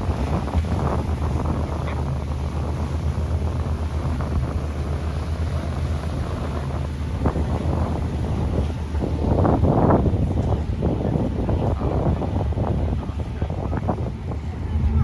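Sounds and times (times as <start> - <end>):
boat engine droning: 0.0 - 15.0
wind buffeting microphone: 0.0 - 15.0.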